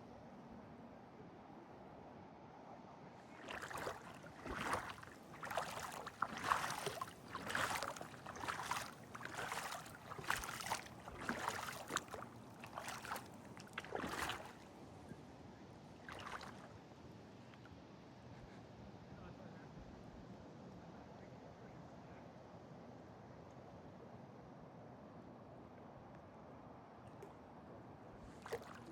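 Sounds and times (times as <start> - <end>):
paddle strokes splashing water: 3.3 - 14.7, 16.1 - 16.7, 28.2 - 28.9.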